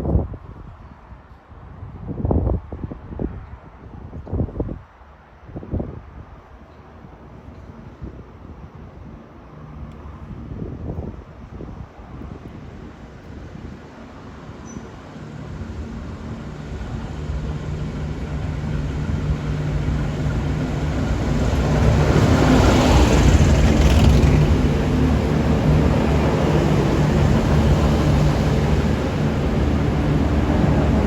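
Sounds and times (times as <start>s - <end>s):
diesel train engine hum: 12.4s - 31.0s
train wheel and air rush: 12.6s - 31.0s.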